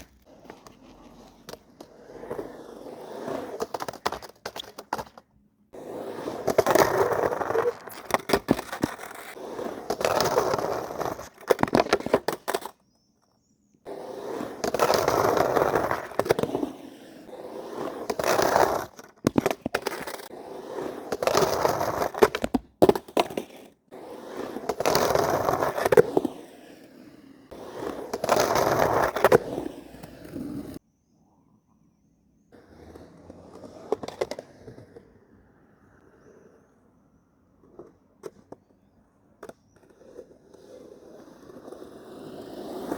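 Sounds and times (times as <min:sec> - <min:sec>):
skateboard clacking on ground: 0:00.0 - 0:02.6
skateboard wheels rolling and grinding: 0:00.0 - 0:30.8, 0:32.4 - 0:42.9.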